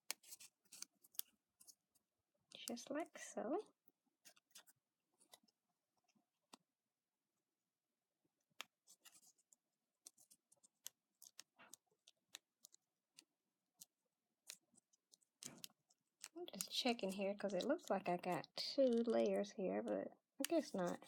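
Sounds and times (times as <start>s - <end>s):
paper pieces clicking and rustling: 0.0s - 1.8s, 8.6s - 19.4s, 20.4s - 21.0s.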